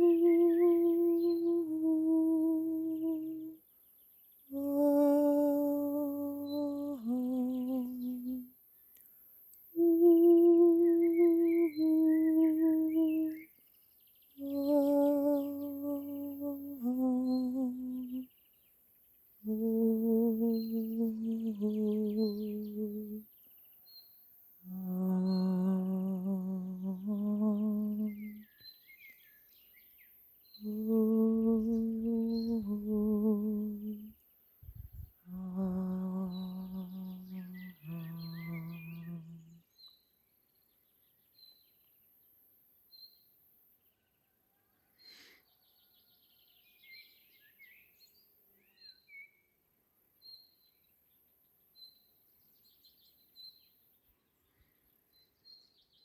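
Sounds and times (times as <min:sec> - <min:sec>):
person humming held notes: 0:00.0 - 0:03.6, 0:04.5 - 0:08.5, 0:09.8 - 0:13.4, 0:14.4 - 0:18.3, 0:19.4 - 0:23.2, 0:24.6 - 0:28.5, 0:30.6 - 0:34.2, 0:34.8 - 0:39.6
birds chirping faintly: 0:00.0 - 0:56.0.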